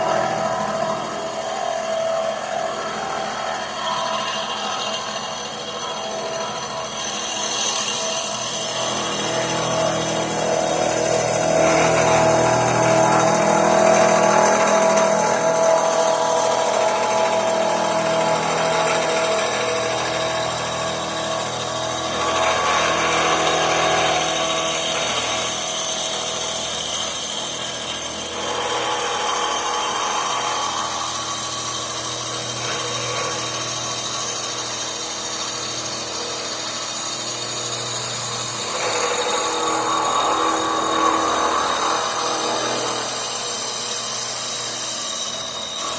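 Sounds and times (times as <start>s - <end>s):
power tool working metal: 0.0s - 45.9s.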